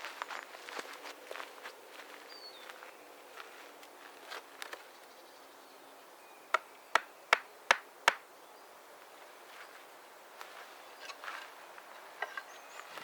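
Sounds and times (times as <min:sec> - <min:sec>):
sharp knocks: 0:06.5 - 0:08.2.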